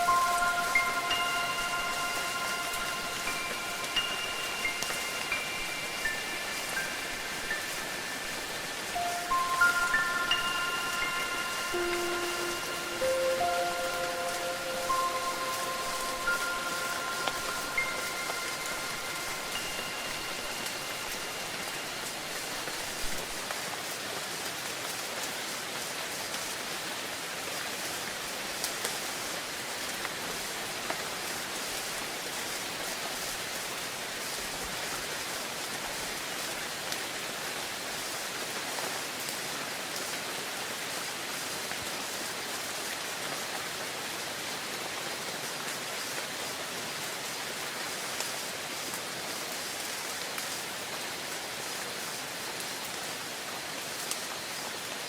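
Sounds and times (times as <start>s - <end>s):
wind chime tones: 0.0s - 23.3s
steady rainfall: 0.0s - 55.0s.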